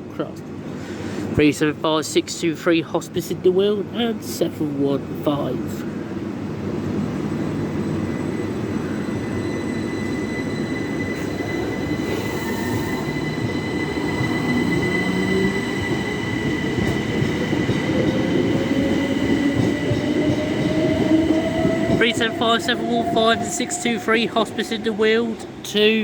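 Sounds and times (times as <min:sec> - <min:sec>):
train running rumble: 0:06.2 - 0:26.0
traction motor whine rising: 0:07.3 - 0:24.9.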